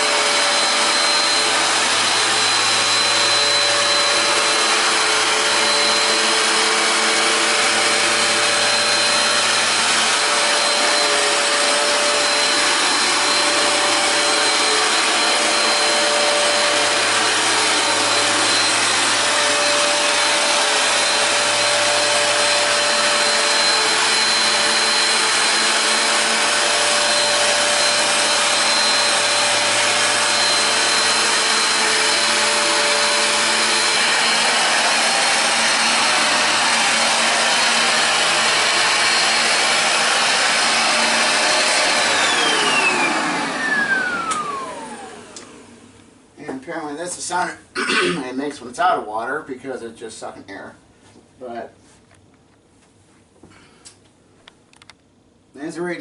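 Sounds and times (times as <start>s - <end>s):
high motor whine: 0.0s - 46.0s
carpet cleaner motor running: 0.0s - 46.2s.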